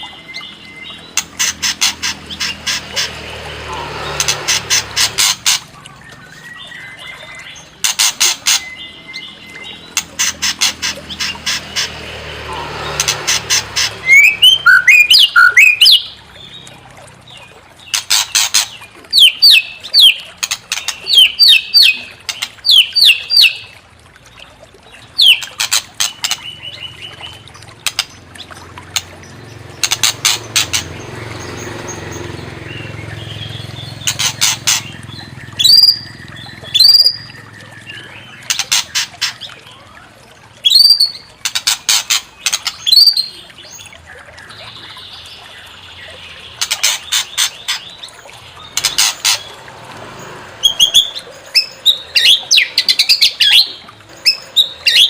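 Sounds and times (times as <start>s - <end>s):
bird harsh chattering and whistles: 9.6s - 16.1s, 32.7s - 39.4s, 50.6s - 55.0s.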